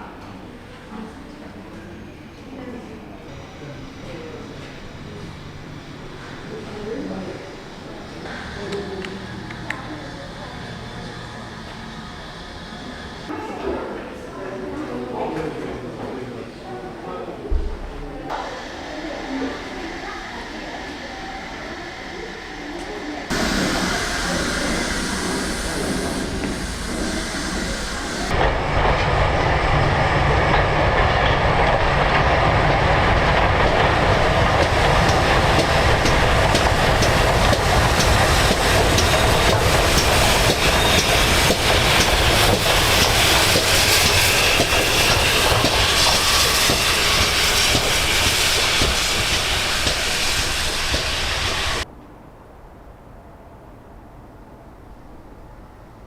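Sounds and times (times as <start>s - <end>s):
steam train rumble: 3.1s - 13.4s, 18.3s - 51.9s
wheels clacking over rail joints: 30.4s - 51.8s.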